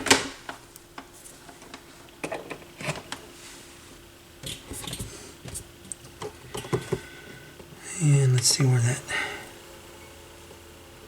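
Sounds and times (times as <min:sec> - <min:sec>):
faint turntable hum: 0:00.6 - 0:11.0.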